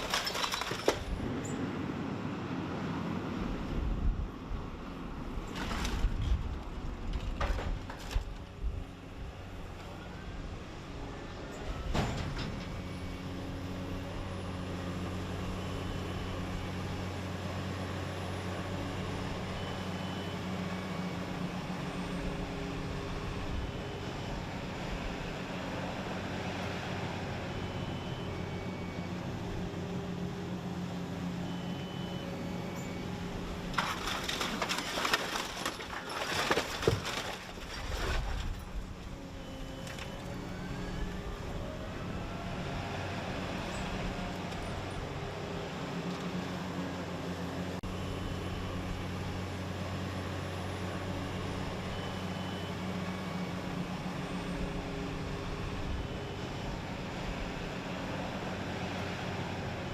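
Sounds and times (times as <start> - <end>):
scrap metal crashing: 0.0 - 1.1, 33.7 - 38.6.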